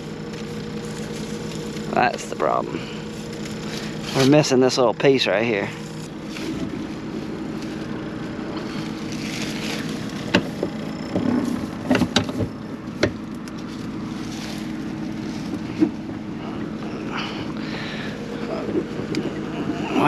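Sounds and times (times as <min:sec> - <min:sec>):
combine engine idling: 0:00.0 - 0:20.0.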